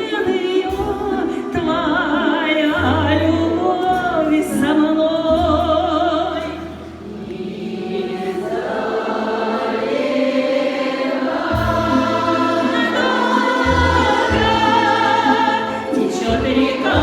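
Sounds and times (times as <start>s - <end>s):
instrumental accompaniment: 0.1s - 17.0s
bass notes: 0.7s - 7.4s, 11.4s - 17.0s
choir holding long notes: 6.9s - 17.0s.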